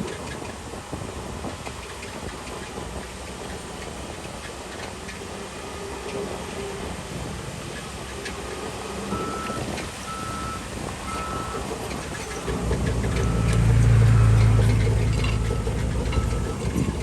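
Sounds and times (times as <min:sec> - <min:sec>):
diesel engine running: 0:07.6 - 0:17.0
reversing alarm beeping: 0:09.1 - 0:17.0.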